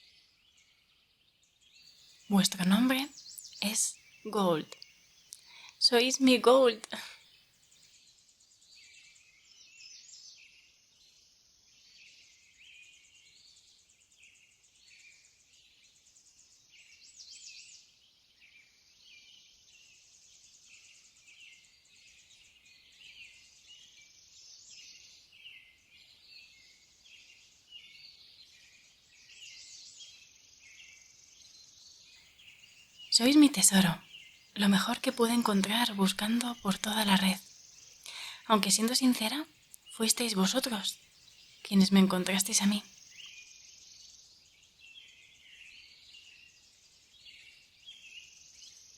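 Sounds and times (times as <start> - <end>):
birds chirping: 2.0 - 7.2, 29.4 - 48.9
steady thin hiss: 37.4 - 38.5.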